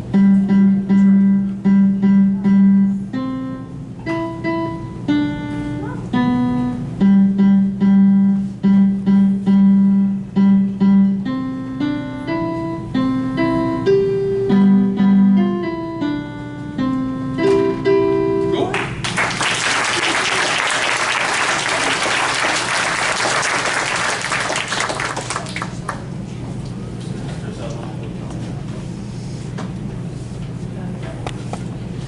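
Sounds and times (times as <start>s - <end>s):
solo instrumental melody: 0.0s - 18.7s.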